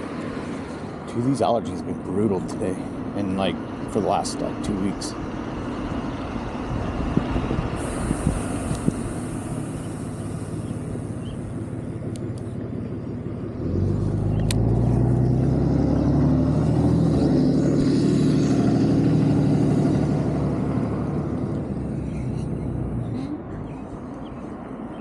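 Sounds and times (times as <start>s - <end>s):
motor vehicle hum: 0.0s - 25.0s
road rumble: 0.0s - 25.0s
wind: 0.0s - 25.0s.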